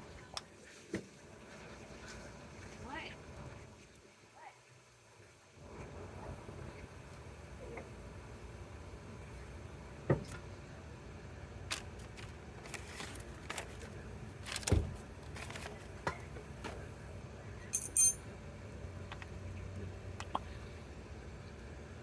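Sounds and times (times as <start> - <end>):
metal tools clicking and knocking: 17.7 - 18.3
metallic jingle: 17.7 - 18.3.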